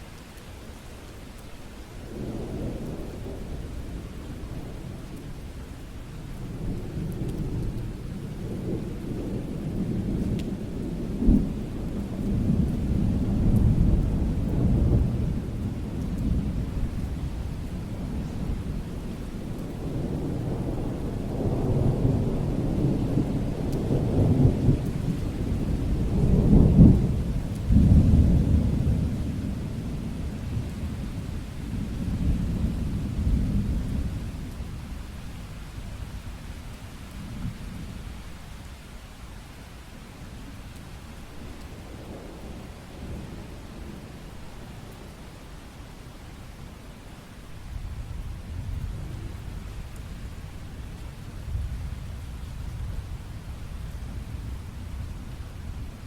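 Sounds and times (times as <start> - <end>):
steady rain: 0.0 - 56.0
thunder rumbling: 2.1 - 36.5, 47.3 - 56.0.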